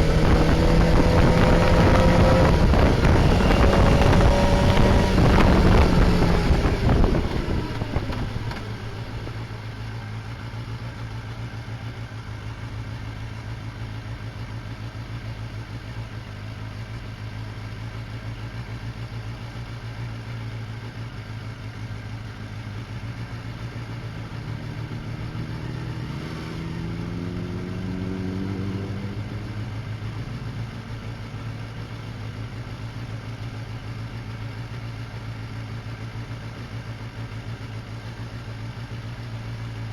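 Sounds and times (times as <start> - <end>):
engine note rising in pitch: 0.0 - 7.9
wind and riding noise: 0.0 - 9.6
motorcycle engine idling: 0.0 - 26.0, 29.1 - 39.9.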